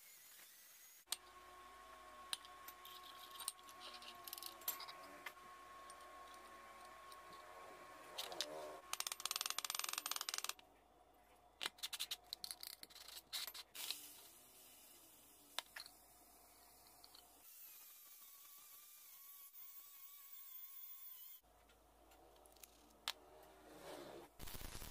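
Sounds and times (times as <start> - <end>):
steel pins clinking on metal: 2.3 - 5.1.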